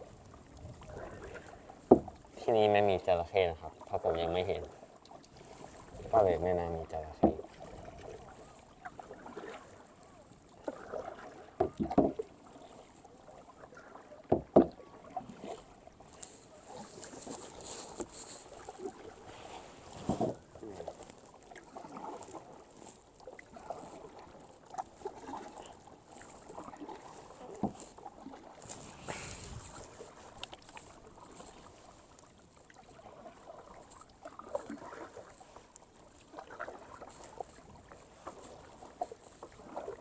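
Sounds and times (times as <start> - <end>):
paddle strokes splashing: 0.0 - 40.0
loud splashes or knocks: 11.6 - 12.2.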